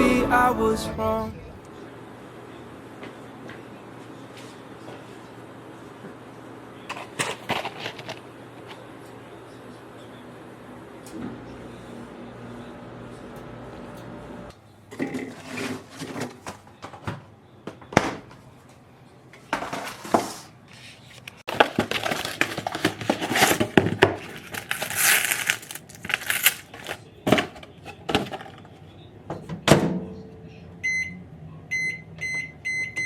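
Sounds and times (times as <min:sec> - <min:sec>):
objects being handled: 0:19.6 - 0:28.6.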